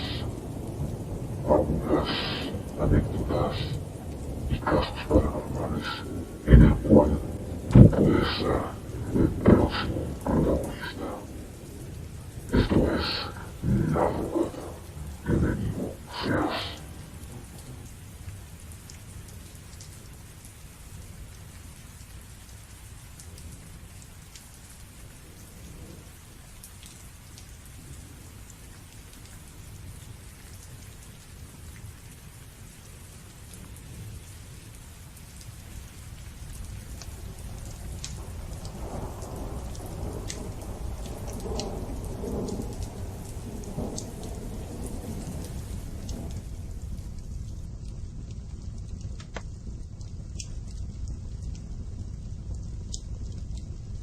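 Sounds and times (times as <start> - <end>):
thunder rumble: 0.0 - 19.7, 35.8 - 54.0
raindrop ticks: 0.0 - 54.0
steady rain: 0.0 - 54.0.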